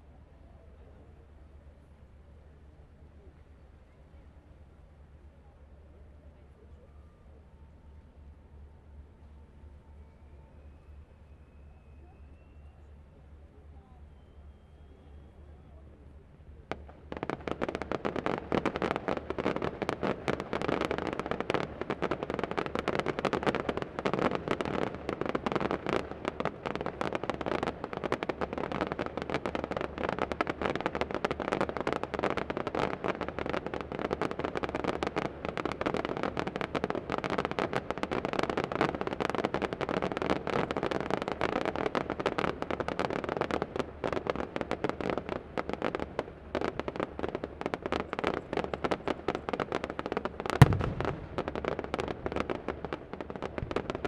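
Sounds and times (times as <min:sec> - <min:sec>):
fireworks bangs and crackles: 0:16.1 - 0:54.0.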